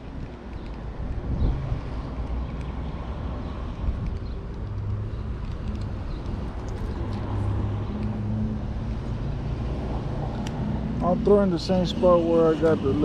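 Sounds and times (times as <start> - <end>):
engine hum: 0.0 - 13.0
cars passing: 0.1 - 13.0.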